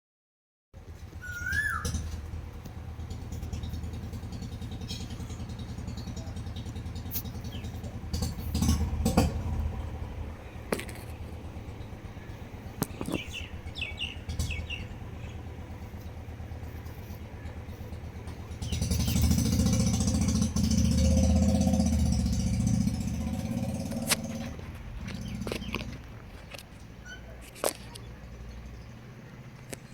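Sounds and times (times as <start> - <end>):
vehicle engine running: 0.8 - 29.9
bird chirps: 1.2 - 2.2, 7.2 - 7.9, 12.0 - 19.7.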